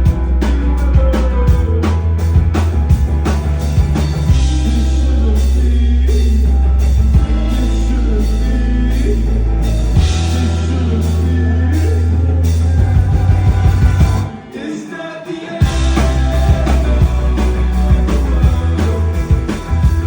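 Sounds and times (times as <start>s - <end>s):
live rock band playing: 0.0s - 20.0s
person singing: 4.4s - 20.0s.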